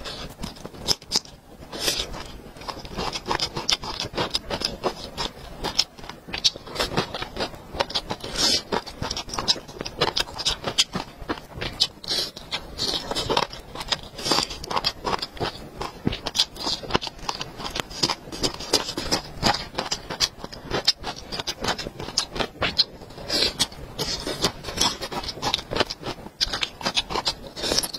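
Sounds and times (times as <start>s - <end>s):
chewing with wet smacks: 0.2s - 27.9s.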